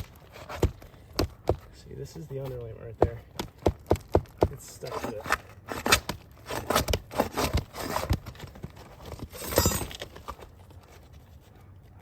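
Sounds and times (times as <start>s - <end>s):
roof shingle tearing loose: 3.3s - 10.6s.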